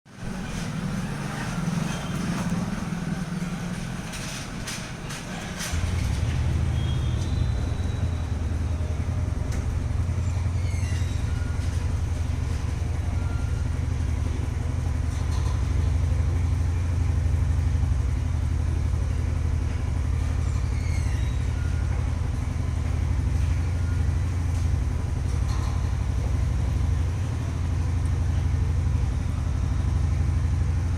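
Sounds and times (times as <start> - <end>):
engine rumbling: 0.1 - 30.9
faint high squeaks: 4.2 - 13.9, 20.2 - 24.8.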